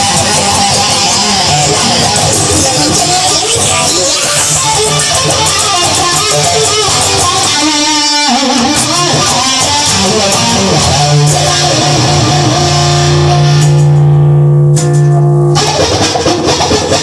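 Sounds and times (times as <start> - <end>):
guitar playing: 0.0 - 17.0.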